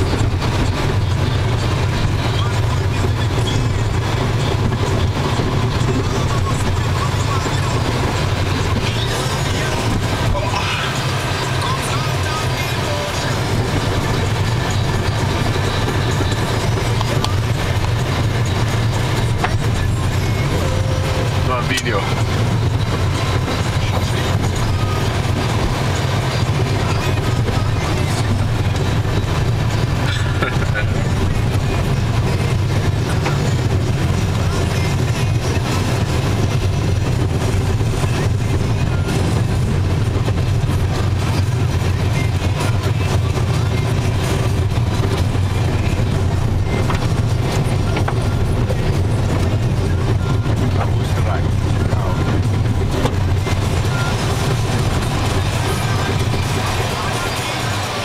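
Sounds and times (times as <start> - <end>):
vehicle engine and tyre noise: 0.0 - 58.0.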